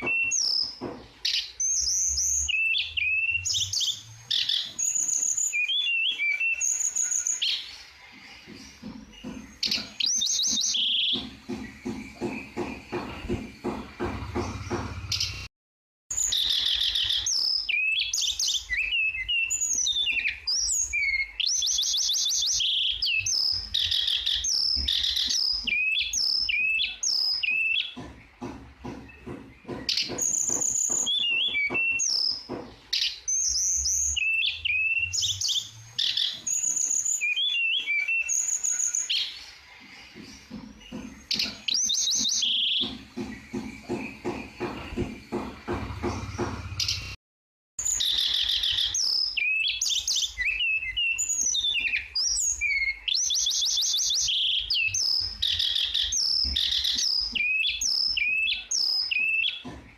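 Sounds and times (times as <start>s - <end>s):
bird singing whistled trills: 0.0s - 7.9s, 9.1s - 13.0s, 16.1s - 28.0s, 29.1s - 39.6s, 41.2s - 45.4s, 47.8s - 59.6s.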